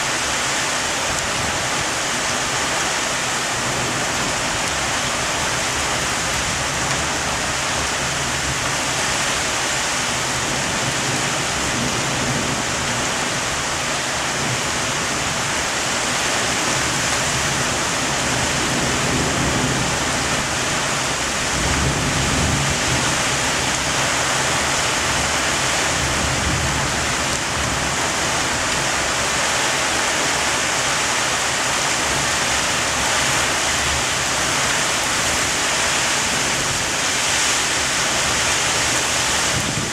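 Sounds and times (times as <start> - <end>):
heavy rain pouring: 0.0 - 39.9
low thunder rumble: 18.3 - 25.3.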